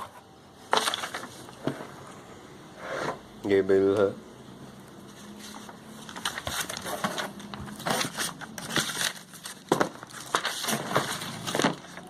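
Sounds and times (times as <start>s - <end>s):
packaging crinkling: 5.4s - 12.0s.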